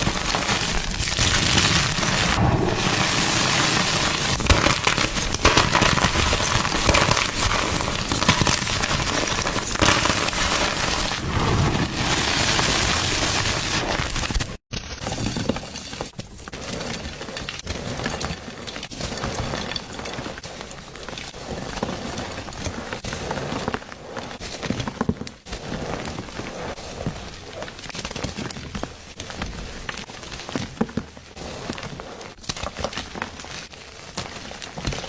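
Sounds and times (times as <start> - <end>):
chalk being crushed: 0.0 - 14.6.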